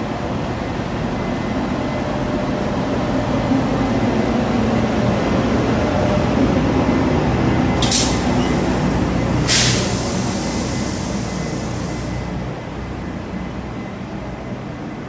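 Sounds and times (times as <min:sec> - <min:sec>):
train rumbling: 0:00.0 - 0:15.0
short air hisses: 0:07.8 - 0:12.3.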